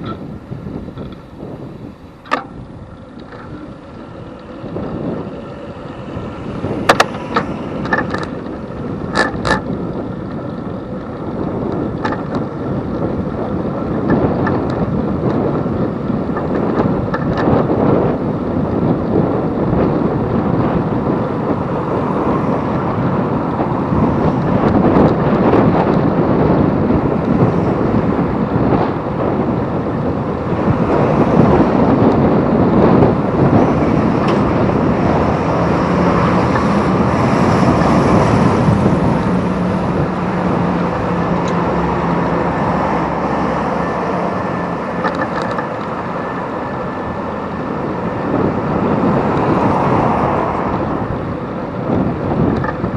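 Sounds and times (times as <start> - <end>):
passing road traffic: 0.0 - 52.9
vehicle engine hum: 0.0 - 52.9
wind on microphone: 0.0 - 52.9.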